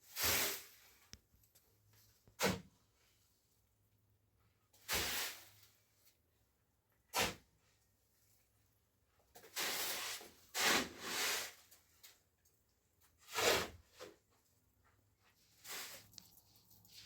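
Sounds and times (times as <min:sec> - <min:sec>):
hand tool scraping gritty surface: 0:09.4 - 0:11.7, 0:13.2 - 0:14.2.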